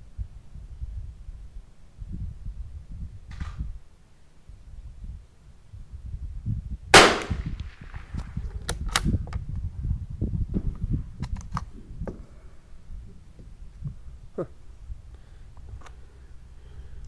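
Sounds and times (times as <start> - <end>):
rifle shot with echo: 7.0 - 8.3
steady low rumble: 7.0 - 8.6.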